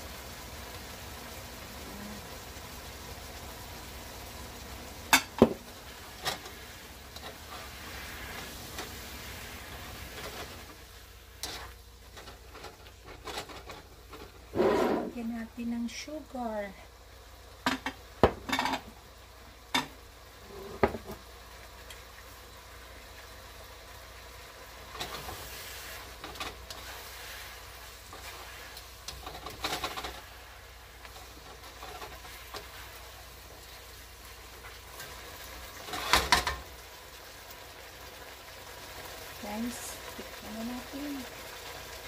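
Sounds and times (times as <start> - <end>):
food sizzling in a wok: 0.0 - 42.0
spatula scraping a pan: 11.4 - 15.2, 25.0 - 30.4, 35.8 - 36.6.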